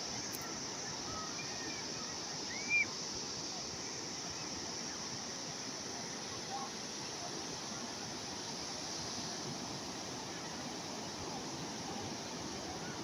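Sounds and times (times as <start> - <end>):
calm sea waves washing: 0.0 - 13.0
faint high chirps: 0.3 - 3.0.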